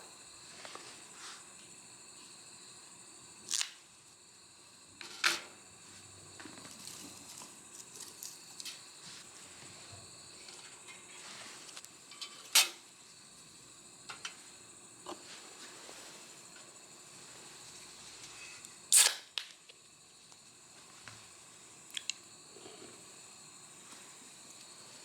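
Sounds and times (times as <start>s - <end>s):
faint steady hiss: 0.0s - 25.0s
small ticks: 6.7s - 8.9s, 21.9s - 22.3s.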